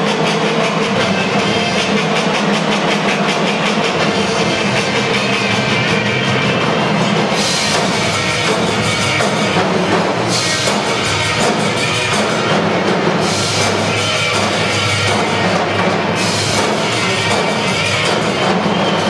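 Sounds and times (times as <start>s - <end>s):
drumline playing fast: 0.0s - 19.0s.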